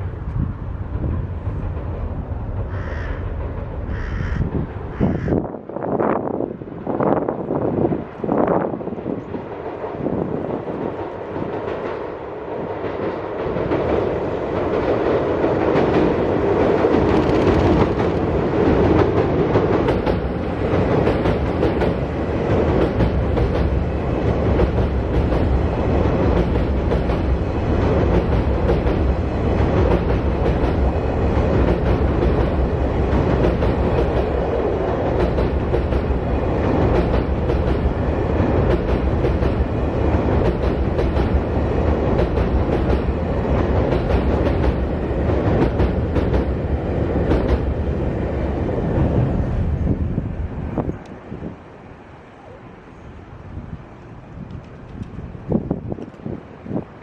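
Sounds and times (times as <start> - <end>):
train wheels clattering on rails: 0.3 - 5.3, 9.0 - 48.2.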